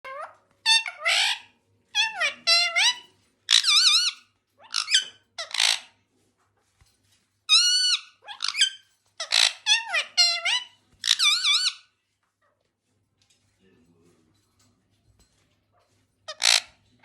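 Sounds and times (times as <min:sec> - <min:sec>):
parrot shrill calls and chatter: 0:00.1 - 0:06.0, 0:06.7 - 0:12.1, 0:15.3 - 0:17.0.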